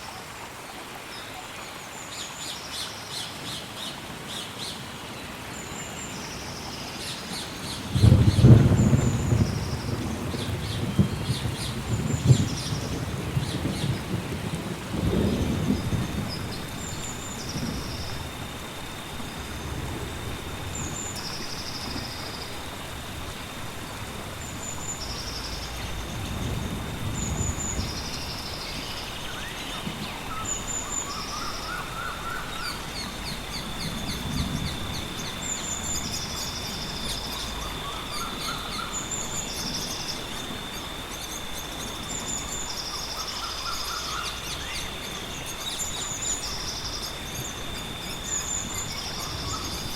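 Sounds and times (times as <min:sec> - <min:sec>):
high insect drone: 0:00.1 - 0:49.9
distant thunder rumbles: 0:07.8 - 0:49.9
lower trilling calls: 0:20.3 - 0:49.9.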